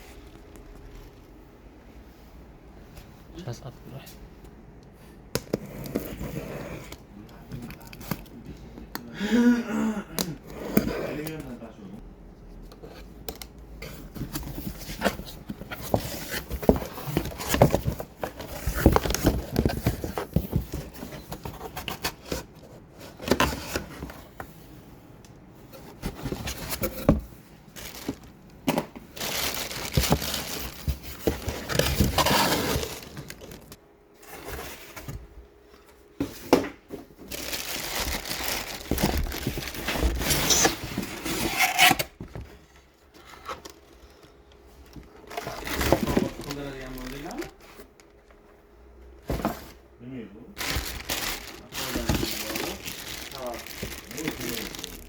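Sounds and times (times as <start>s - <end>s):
packaging crinkling and rustling: 0.1s - 1.4s, 14.0s - 24.4s, 25.9s - 35.2s, 37.1s - 42.0s, 43.1s - 48.5s, 50.6s - 55.0s.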